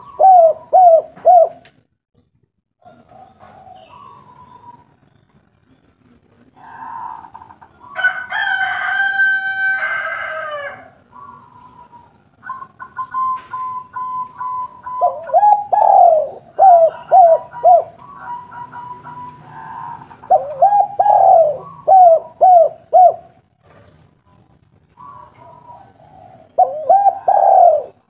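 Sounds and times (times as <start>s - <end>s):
dove cooing: 0.0s - 1.8s, 2.8s - 5.0s, 6.4s - 8.2s, 10.4s - 28.0s
rooster crowing: 6.6s - 11.0s, 16.8s - 20.2s.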